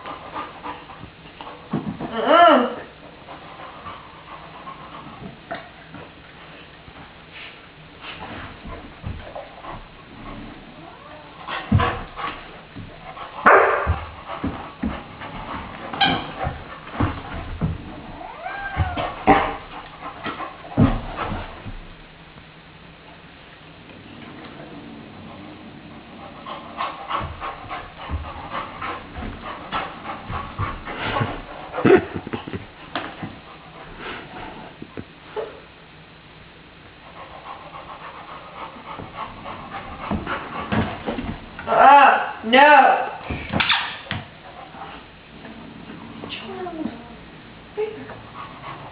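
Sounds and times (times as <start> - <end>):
puppy panting: 0.0 - 1.8, 3.0 - 6.1, 10.9 - 17.7, 26.2 - 34.4, 37.0 - 41.6, 48.1 - 48.9
thumps and scuffling: 13.8 - 18.1, 18.7 - 22.0, 27.1 - 33.5, 39.0 - 41.7.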